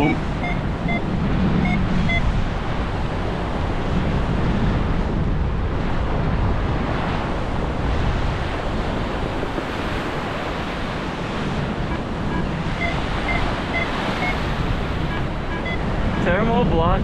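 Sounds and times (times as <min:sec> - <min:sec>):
short high electronic beeps: 0:00.0 - 0:01.0, 0:11.9 - 0:14.4, 0:15.0 - 0:16.4
wind buffeting microphone: 0:00.0 - 0:17.0.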